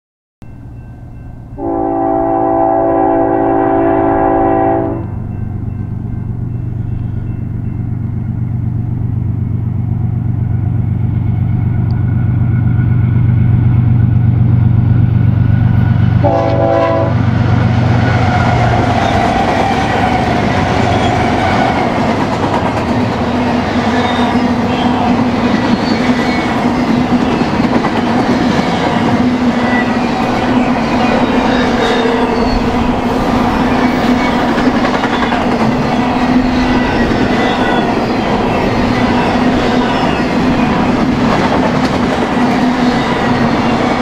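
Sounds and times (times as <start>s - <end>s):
train cars rolling past: 0.4s - 44.0s
diesel locomotive engine running: 0.6s - 44.0s
train air horn blasts: 1.6s - 5.4s, 16.2s - 17.2s.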